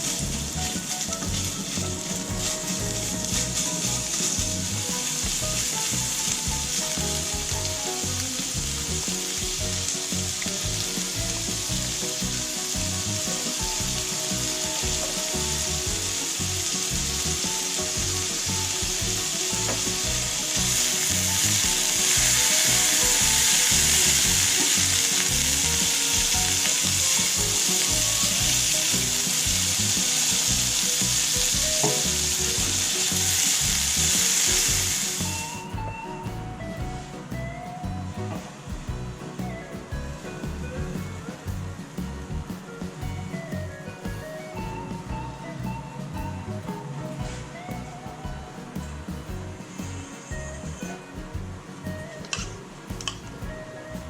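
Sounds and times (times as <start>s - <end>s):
batter sizzling on a hot pan: 0.0s - 36.2s.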